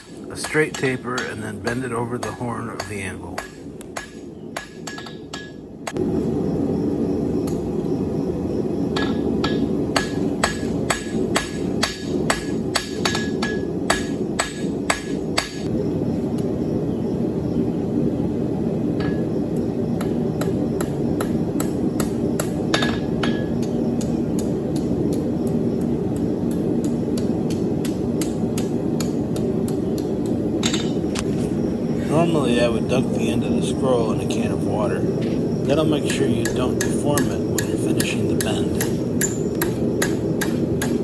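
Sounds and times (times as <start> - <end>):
hammer on steel on anvil: 0.0 - 5.6, 9.0 - 15.7, 20.0 - 24.9, 36.1 - 41.0
low rushing noise: 5.8 - 41.0.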